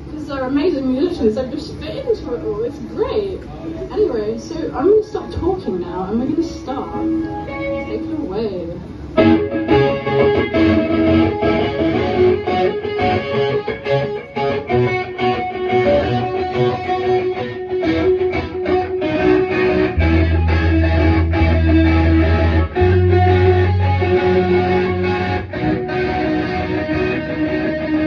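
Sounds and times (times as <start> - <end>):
electric guitar riff: 3.6 - 28.0
deep bass: 19.3 - 25.9.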